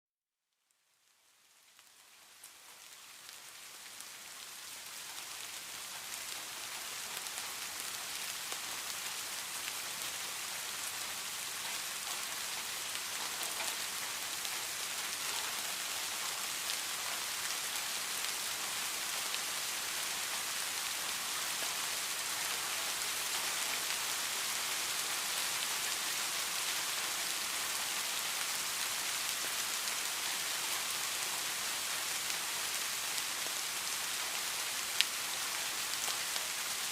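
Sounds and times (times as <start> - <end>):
heavy rain falling: 1.5 - 36.9.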